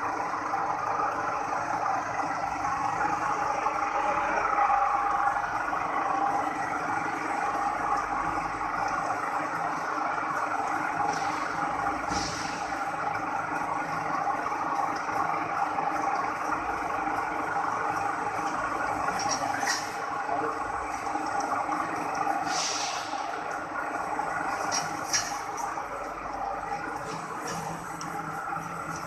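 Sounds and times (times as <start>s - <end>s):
slicing machine humming: 15.2s - 29.0s.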